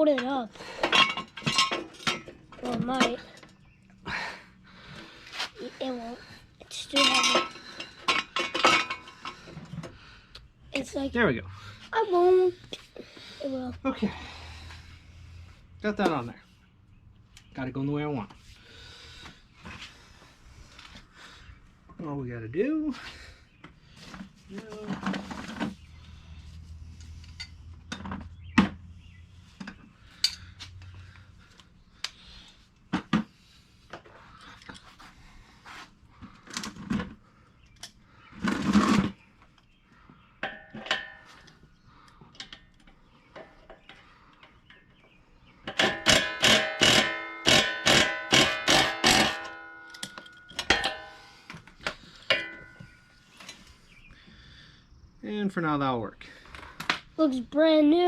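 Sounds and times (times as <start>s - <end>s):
ringing strikes on metal: 45.8s - 51.3s, 52.3s - 53.0s.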